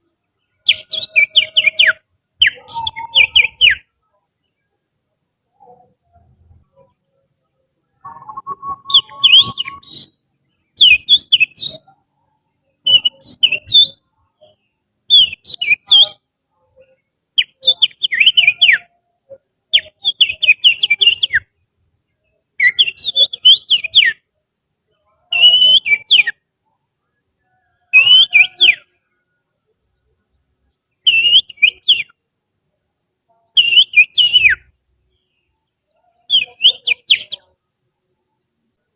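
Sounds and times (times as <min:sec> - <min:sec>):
finger whistling bird song: 0:00.7 - 0:03.9, 0:08.0 - 0:10.2, 0:10.8 - 0:11.9, 0:12.9 - 0:14.0, 0:15.1 - 0:16.2, 0:17.4 - 0:18.9, 0:19.8 - 0:21.5, 0:22.6 - 0:24.2, 0:25.3 - 0:26.4, 0:27.9 - 0:28.8, 0:31.1 - 0:32.2, 0:33.6 - 0:34.7, 0:36.2 - 0:37.5.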